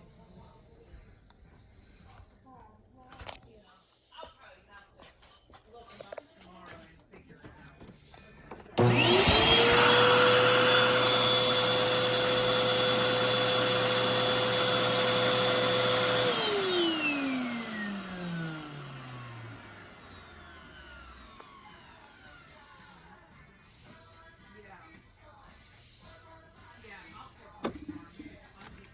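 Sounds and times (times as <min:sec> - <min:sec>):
vacuum cleaner motor whining: 0:08.6 - 0:23.2.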